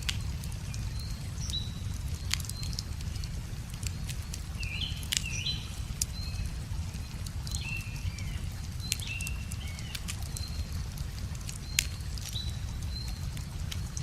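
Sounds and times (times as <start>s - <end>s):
birds chirping: 0.0s - 14.0s
steady low rumble: 0.0s - 14.0s
wood fire crackling and popping: 0.0s - 14.0s.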